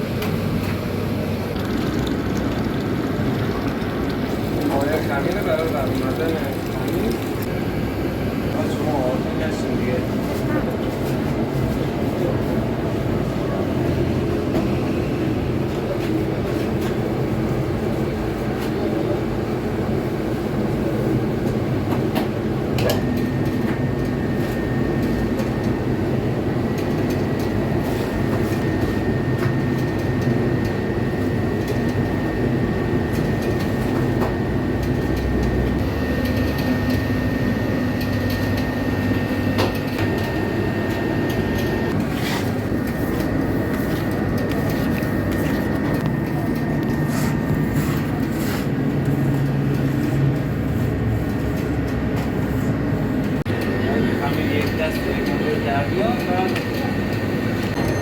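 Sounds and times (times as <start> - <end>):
machinery droning: 22.3 - 58.0
high-pitched machine whine: 22.5 - 50.3, 53.2 - 58.0.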